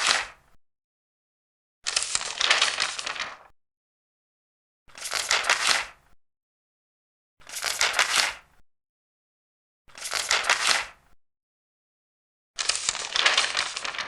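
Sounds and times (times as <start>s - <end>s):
paper pages turning: 1.9s - 3.5s, 4.9s - 6.0s, 7.4s - 8.4s, 9.9s - 11.0s, 12.6s - 14.0s.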